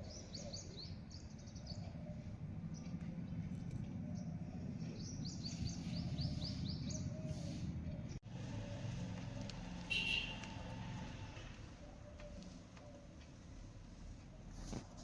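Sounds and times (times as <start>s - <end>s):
small bird chirping: 0.0s - 8.2s.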